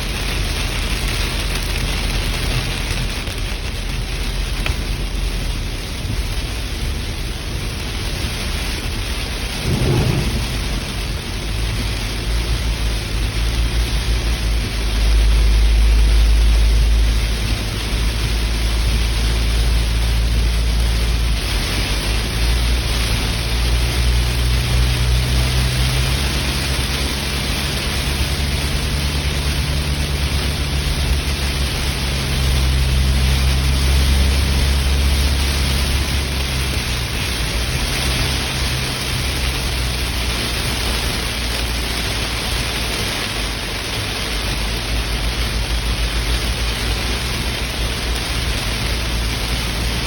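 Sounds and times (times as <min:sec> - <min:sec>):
deep low rumble: 0:00.0 - 0:17.6
steady rain: 0:00.0 - 0:50.0.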